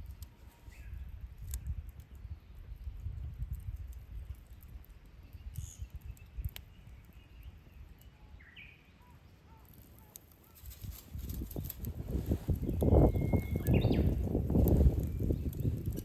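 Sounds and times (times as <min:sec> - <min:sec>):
faint bird chirps: 0:12.7 - 0:15.7.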